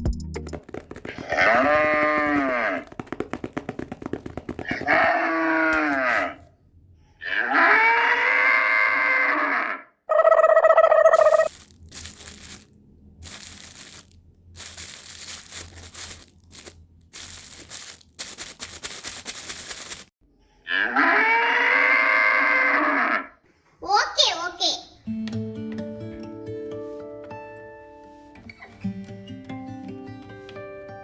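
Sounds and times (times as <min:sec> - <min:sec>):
cattle mooing: 0:01.2 - 0:02.8.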